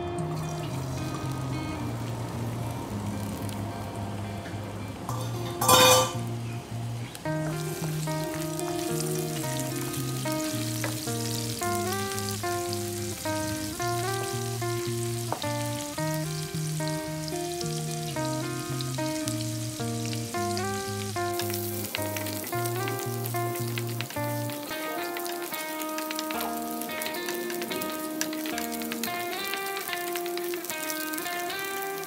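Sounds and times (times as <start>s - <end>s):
anchovies sizzling in hot oil: 0.0s - 32.0s
background music with stepping melody: 7.1s - 32.0s.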